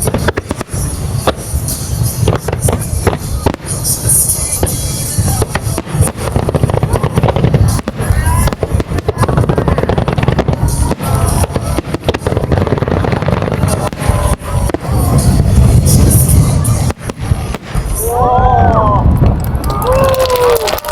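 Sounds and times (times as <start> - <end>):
music playing: 0.0 - 18.5
low rumble: 0.0 - 20.4
fireworks booming and crackling: 0.0 - 20.9.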